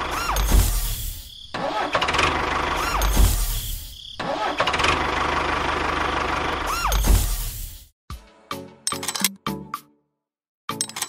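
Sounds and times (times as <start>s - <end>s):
tractor engine running: 0.0s - 7.2s.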